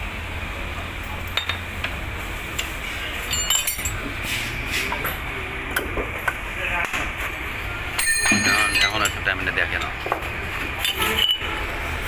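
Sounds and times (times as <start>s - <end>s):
metal tools clinking: 3.2s - 4.1s, 8.0s - 9.9s, 10.8s - 11.6s.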